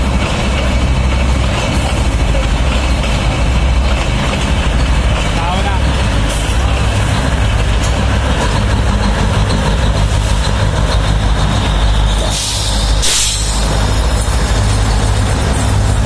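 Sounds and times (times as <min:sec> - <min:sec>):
train rumbling: 0:00.0 - 0:16.0
short hiss: 0:12.4 - 0:13.6.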